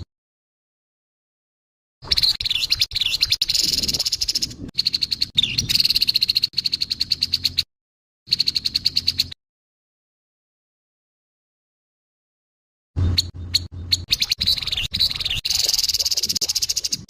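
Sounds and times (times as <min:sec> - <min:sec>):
bird buzzy rattling call: 0:02.0 - 0:07.7, 0:08.3 - 0:09.4, 0:13.0 - 0:17.0.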